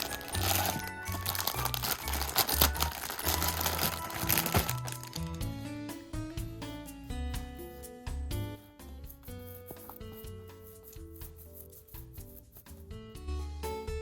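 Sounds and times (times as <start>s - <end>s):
packaging crinkling: 0.0s - 5.4s
background music: 0.0s - 14.0s.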